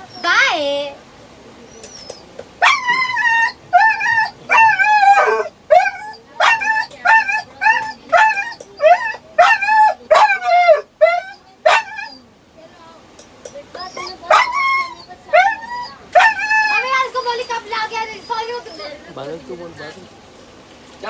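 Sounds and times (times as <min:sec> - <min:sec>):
dog whining and howling: 0:01.7 - 0:12.2, 0:13.8 - 0:19.0.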